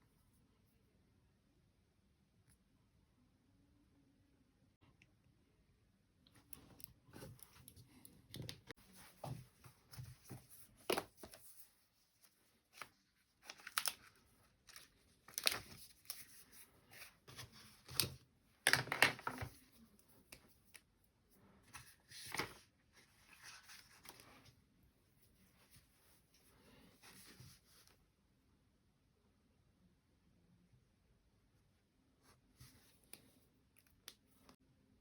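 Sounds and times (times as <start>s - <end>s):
rustling crinkling handling noises: 6.4s - 20.8s.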